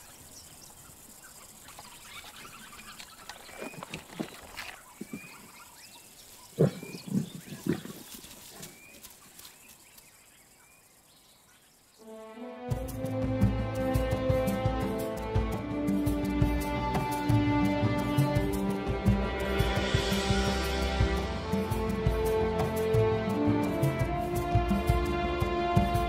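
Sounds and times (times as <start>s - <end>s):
bird chirping: 0.0s - 12.1s
lions grunting and growling: 6.5s - 8.7s
music: 12.0s - 26.0s.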